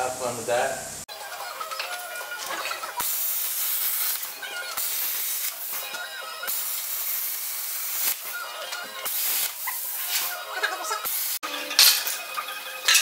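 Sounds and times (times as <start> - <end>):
compressed air hissing: 3.0 - 8.4, 9.0 - 10.4, 11.0 - 11.4.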